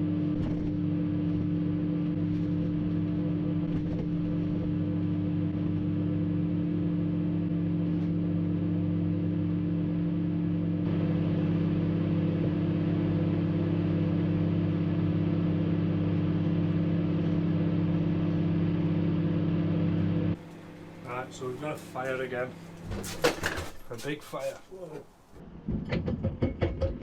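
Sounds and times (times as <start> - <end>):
microwave oven humming: 0.0 - 25.5.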